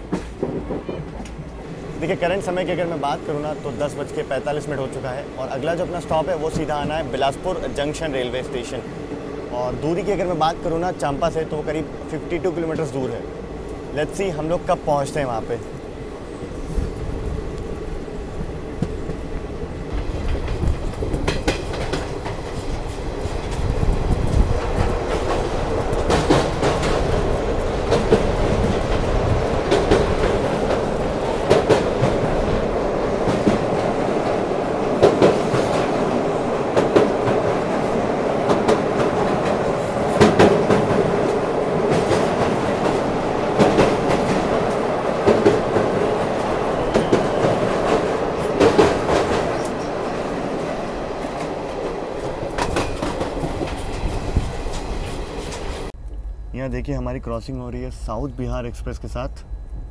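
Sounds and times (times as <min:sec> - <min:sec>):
train wheels clacking over rail joints: 0:00.0 - 0:01.5, 0:19.9 - 0:36.0, 0:36.7 - 0:50.0, 0:50.7 - 0:55.9.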